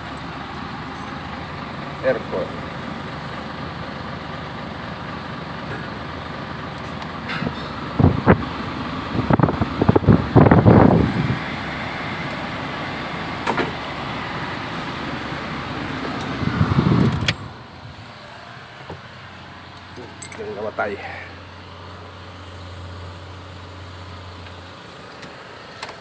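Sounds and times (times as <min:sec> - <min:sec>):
truck engine running: 0:00.0 - 0:26.0
handling knocks and clunks: 0:13.4 - 0:13.9.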